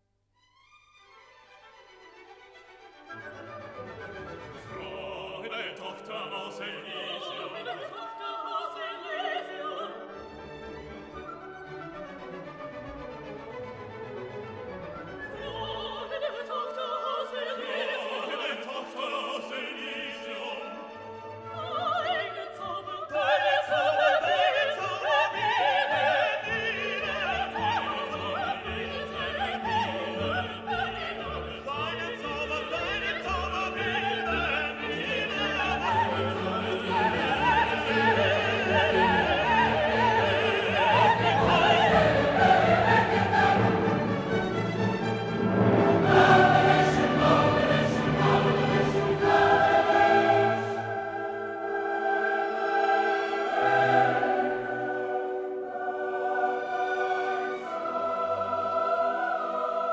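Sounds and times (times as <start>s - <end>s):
orchestra playing: 0.7s - 16.5s, 24.3s - 59.6s
operatic singing: 3.0s - 59.9s.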